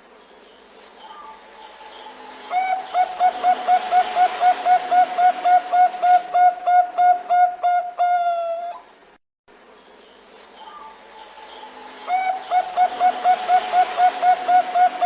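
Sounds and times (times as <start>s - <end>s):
dove cooing: 1.1s - 8.9s, 11.6s - 15.0s.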